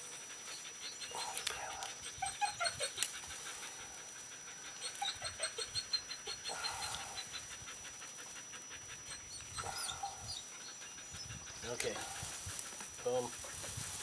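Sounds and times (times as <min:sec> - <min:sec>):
dog whimpering: 0:00.6 - 0:03.1, 0:04.7 - 0:07.5, 0:09.0 - 0:11.2.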